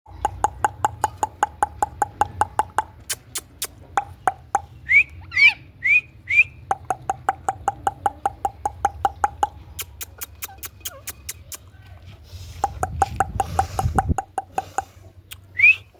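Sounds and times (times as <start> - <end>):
parrot clicking: 0.1 - 4.8, 6.7 - 11.6, 12.6 - 15.5
parrot chirping: 0.1 - 11.6.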